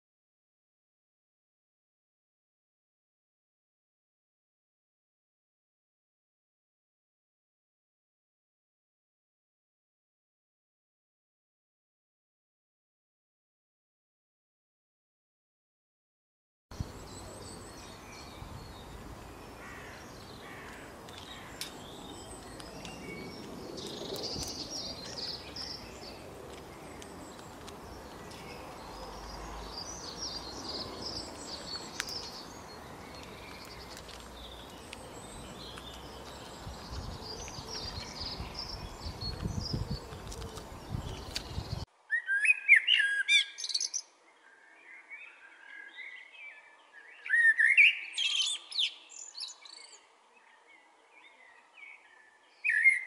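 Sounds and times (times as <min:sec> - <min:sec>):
birds chirping: 0:16.7 - 0:53.0.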